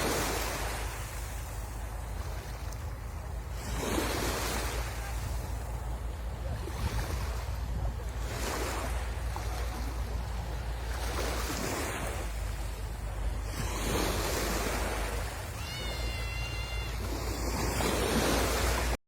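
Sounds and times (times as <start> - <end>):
sea waves breaking on shore: 0.0 - 19.0.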